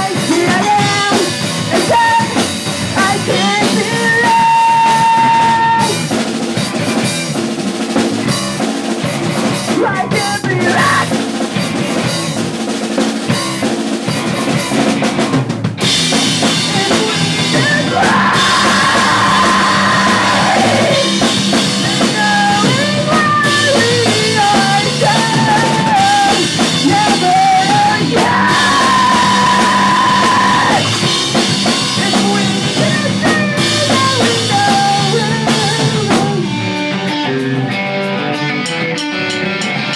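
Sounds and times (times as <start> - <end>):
drum kit pounding: 0.0 - 39.9
live pop punk band: 0.0 - 39.9.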